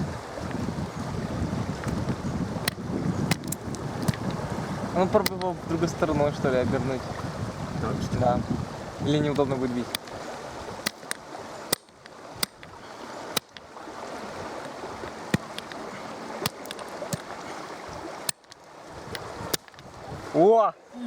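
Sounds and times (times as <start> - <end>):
river rushing: 0.0 - 21.0
blows knocking on stone: 15.0 - 17.4.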